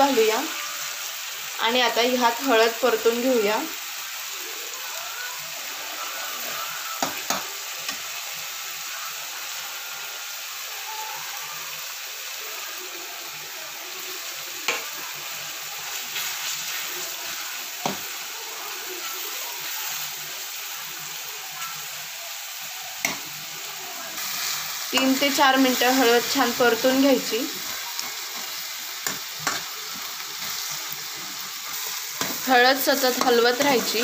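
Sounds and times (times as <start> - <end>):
food sizzling in pan: 0.0 - 34.0
metal spatula stirring: 27.5 - 34.0.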